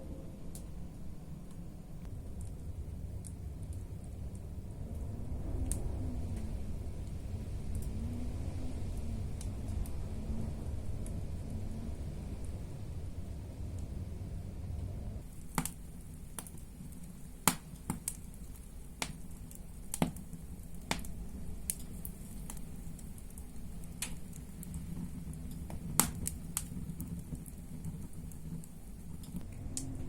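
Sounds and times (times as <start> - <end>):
low rumble of fire: 0.0 - 30.0
firewood popping and snapping: 15.2 - 30.0.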